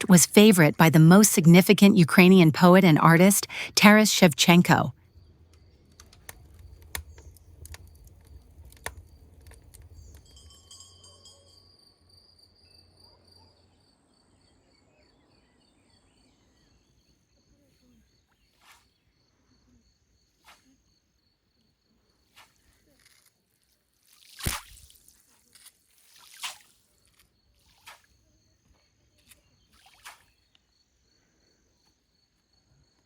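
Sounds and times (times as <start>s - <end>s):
scattered clicks: 5.5s - 10.2s.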